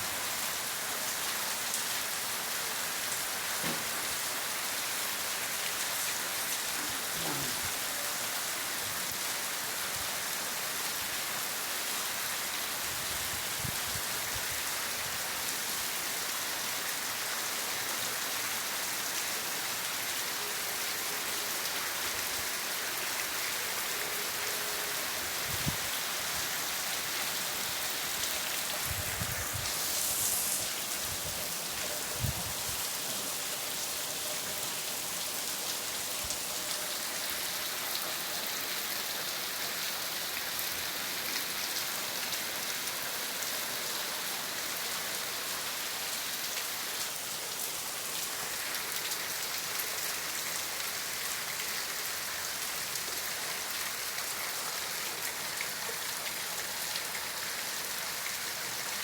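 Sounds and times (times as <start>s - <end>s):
heavy rain pattering: 2.6s - 9.6s.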